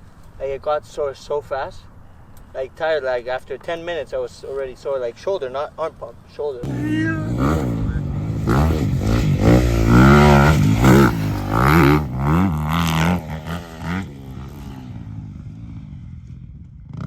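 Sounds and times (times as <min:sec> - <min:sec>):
dirt bike engine revving: 0:06.6 - 0:16.2.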